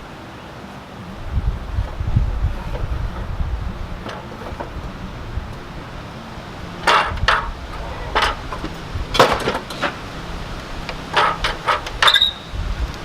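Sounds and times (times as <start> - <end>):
low steady hum: 0.0 - 13.0
wooden tools knocking and clattering: 4.0 - 4.9, 6.8 - 10.0, 10.9 - 12.4.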